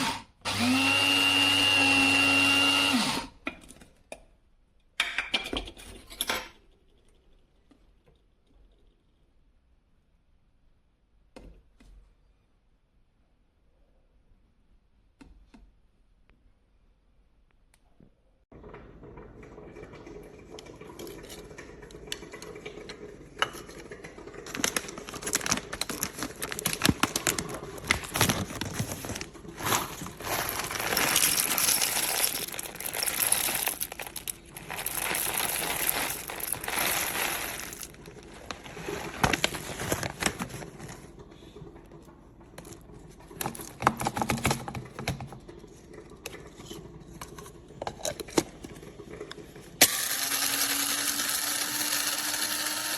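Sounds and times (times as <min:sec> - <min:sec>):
packaging crinkling and rustling: 0:24.4 - 0:41.0.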